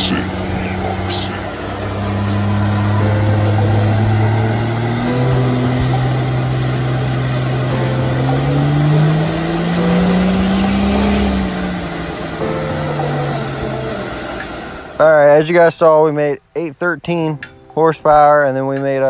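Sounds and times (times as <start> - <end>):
turbo whine: 0.0 - 15.2
diesel engine under full load: 0.0 - 15.5.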